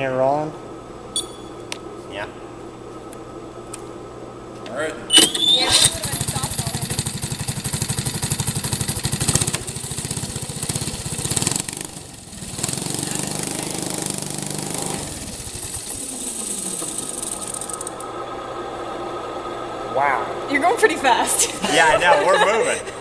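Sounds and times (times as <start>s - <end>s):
small engine rapid beat: 5.7s - 18.2s.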